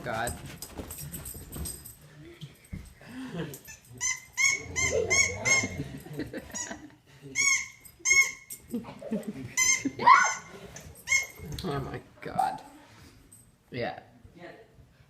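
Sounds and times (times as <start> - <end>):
dog yapping: 4.1 - 5.8, 9.8 - 10.5.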